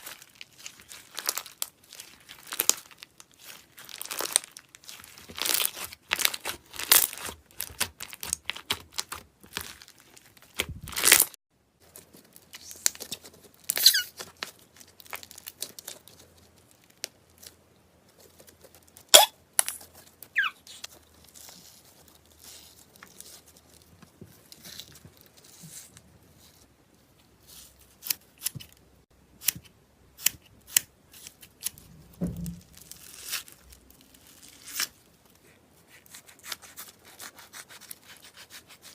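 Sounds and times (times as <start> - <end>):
slime squeaks: 13.7 - 14.2, 19.0 - 19.4, 20.3 - 21.5.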